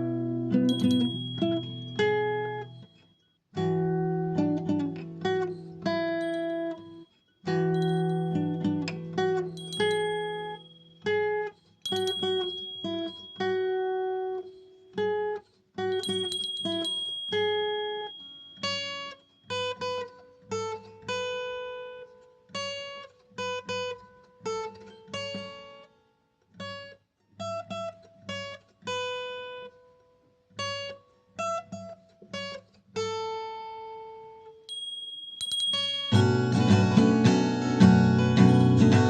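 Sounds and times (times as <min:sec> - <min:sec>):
acoustic guitar plucking: 0:00.0 - 0:22.0, 0:35.8 - 0:39.0.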